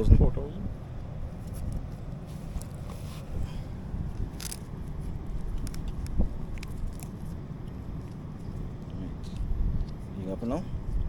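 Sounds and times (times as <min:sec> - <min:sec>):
steady low rumble: 0:00.0 - 0:11.0
handling clicks and scrapes: 0:01.4 - 0:03.4, 0:04.0 - 0:08.6.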